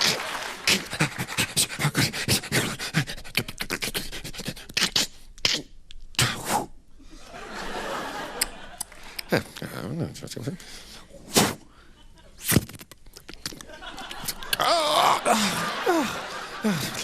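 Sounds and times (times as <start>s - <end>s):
mouth clicks and pops: 3.3s - 6.6s, 12.4s - 14.7s.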